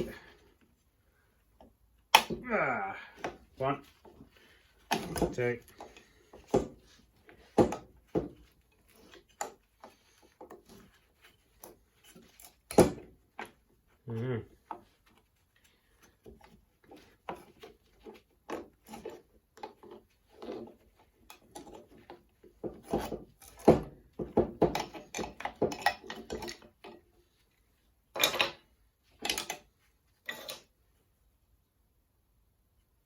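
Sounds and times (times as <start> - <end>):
metal parts knocking and scraping: 16.9 - 27.1, 28.1 - 30.7.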